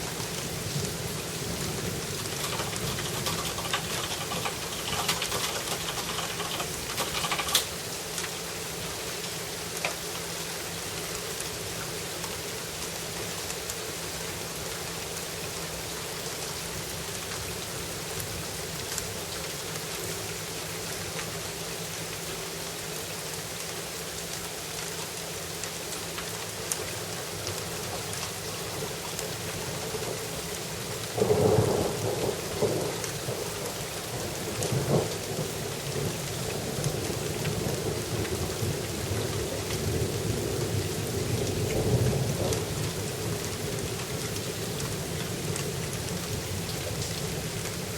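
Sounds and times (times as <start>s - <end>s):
rain drop ticks: 0.0s - 8.5s, 9.1s - 10.4s, 11.0s - 17.6s, 18.2s - 20.2s, 22.9s - 47.9s
steady rain falling: 0.0s - 47.9s
rolling thunder: 0.8s - 7.5s, 31.2s - 43.8s.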